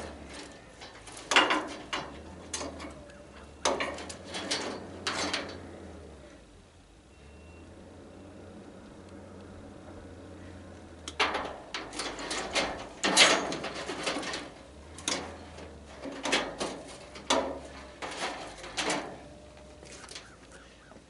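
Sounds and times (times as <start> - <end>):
metal parts clanking and rattling: 0.0 - 6.1, 11.0 - 20.4.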